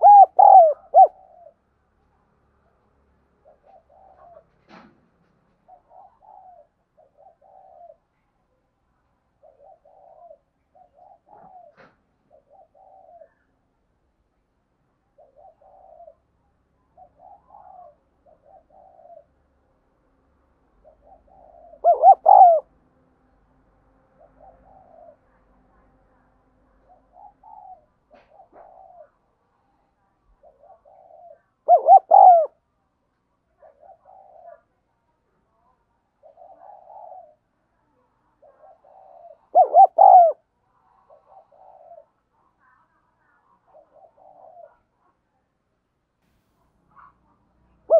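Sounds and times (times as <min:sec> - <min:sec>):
dove cooing: 0:00.0 - 0:01.6, 0:03.4 - 0:04.6, 0:05.7 - 0:08.1, 0:09.4 - 0:13.5, 0:15.2 - 0:16.3, 0:17.0 - 0:19.3, 0:20.8 - 0:22.7, 0:24.2 - 0:25.3, 0:26.9 - 0:29.2, 0:30.4 - 0:32.6, 0:33.6 - 0:34.7, 0:36.2 - 0:45.0.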